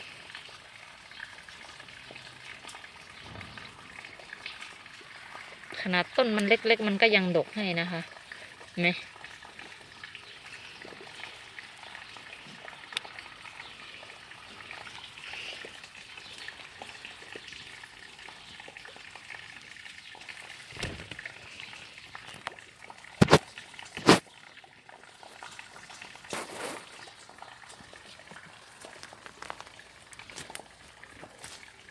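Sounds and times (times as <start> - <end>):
steady rain hiss: 20.4 - 22.5, 26.2 - 31.9.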